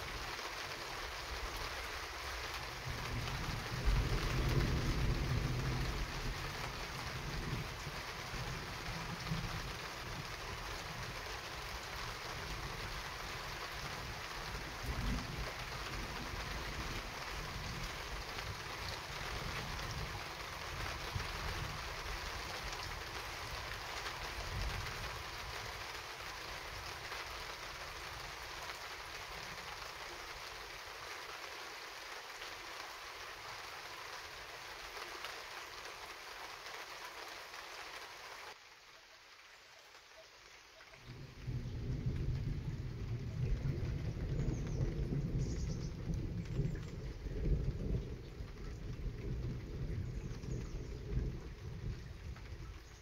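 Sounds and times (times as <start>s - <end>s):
heavy rain hissing: 0.0s - 53.0s
low thunder rumble: 2.8s - 11.1s, 41.0s - 53.0s.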